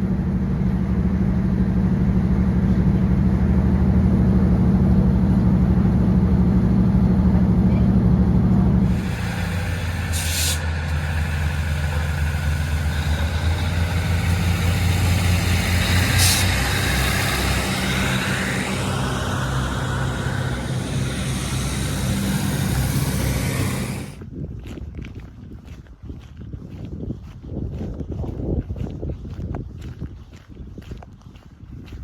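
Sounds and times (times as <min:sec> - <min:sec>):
diesel engine drone: 0:00.0 - 0:24.2
train running noise: 0:00.0 - 0:24.2
short air hisses: 0:08.8 - 0:24.2.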